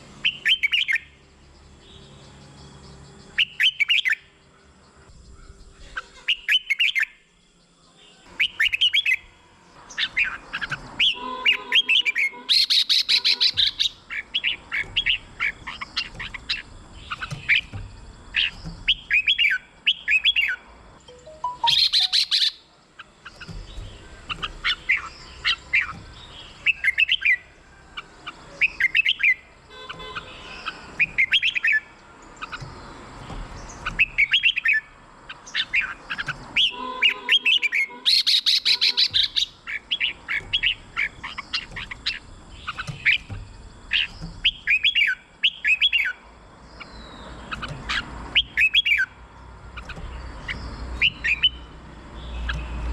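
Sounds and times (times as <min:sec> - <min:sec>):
bird singing whistled phrases: 0:21.2 - 0:22.6, 0:36.6 - 0:43.2, 0:51.0 - 0:51.7.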